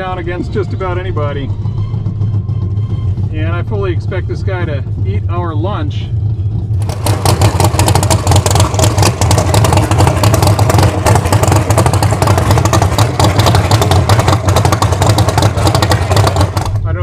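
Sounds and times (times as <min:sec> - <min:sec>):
drag car engine running: 0:00.0 - 0:17.0.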